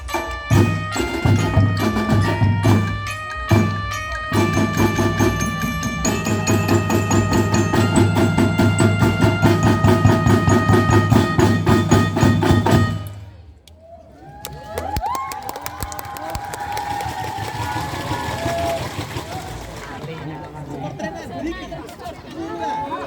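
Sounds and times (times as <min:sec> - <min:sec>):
marching band playing: 0:00.0 - 0:13.4.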